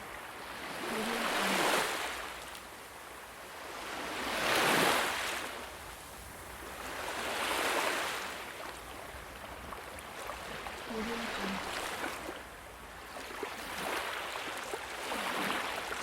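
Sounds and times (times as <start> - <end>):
ocean waves washing in: 0.0 - 2.4, 10.1 - 16.0.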